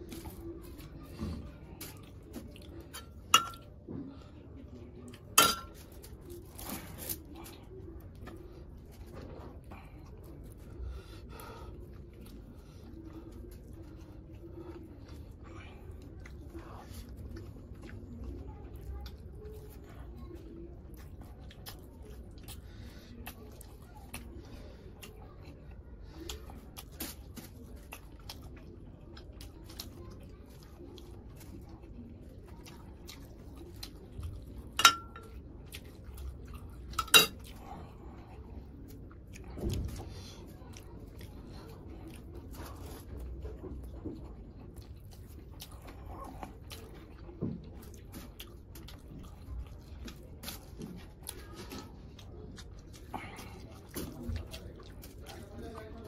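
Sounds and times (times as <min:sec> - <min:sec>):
person chewing food: 0:00.0 - 0:56.0.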